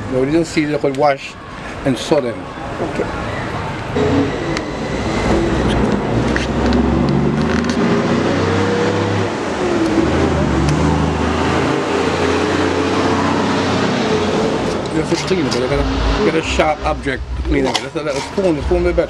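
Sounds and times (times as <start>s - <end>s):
machine humming: 3.8s - 17.6s.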